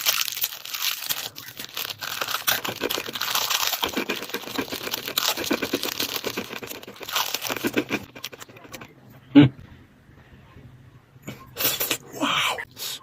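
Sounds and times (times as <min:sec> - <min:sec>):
crunchy snack crackling: 0:00.0 - 0:08.9.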